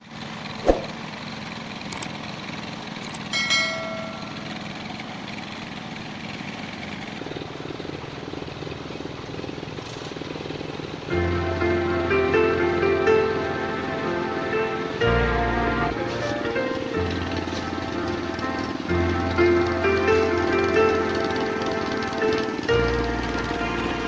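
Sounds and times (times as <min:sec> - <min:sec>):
construction machinery engine running: 0:00.0 - 0:24.0
short metallic ringing: 0:03.1 - 0:04.8.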